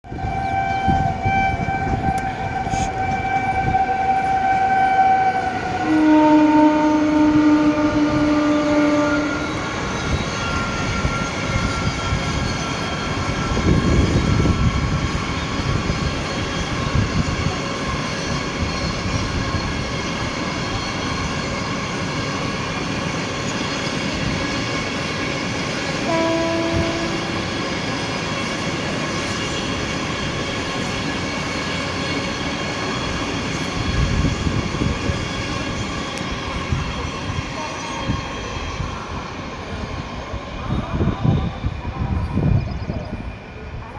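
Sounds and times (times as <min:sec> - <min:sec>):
train wheels rumbling on track: 0:00.0 - 0:43.9
train horn toot: 0:00.1 - 0:09.6, 0:26.0 - 0:27.9.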